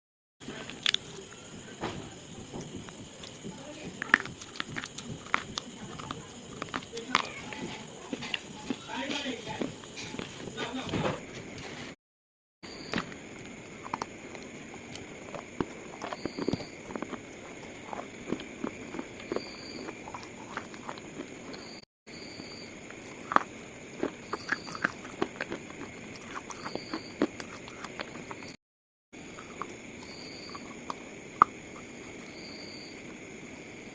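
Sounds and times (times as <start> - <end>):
slate crunching and crackling: 2.8 - 12.0, 13.0 - 21.8, 22.9 - 28.6.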